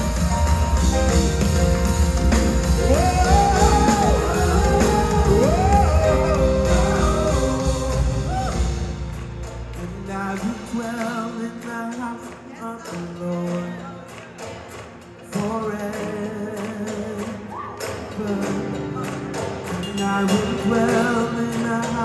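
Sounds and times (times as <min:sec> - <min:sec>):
band with heavy bass and drums: 0:00.0 - 0:11.4
voices singing gospel: 0:02.3 - 0:09.1.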